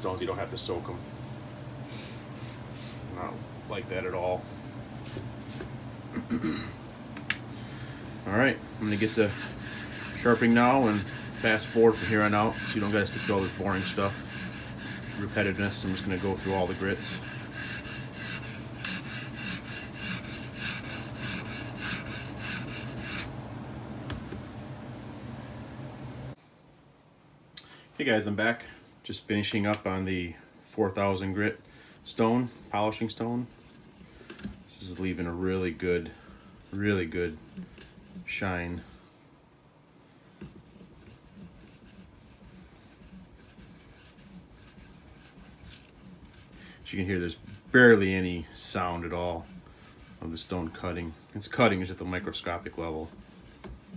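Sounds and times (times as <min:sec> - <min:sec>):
sharpening stone rasping on knife: 0:08.8 - 0:23.3, 0:40.3 - 0:48.0, 0:53.1 - 0:53.9.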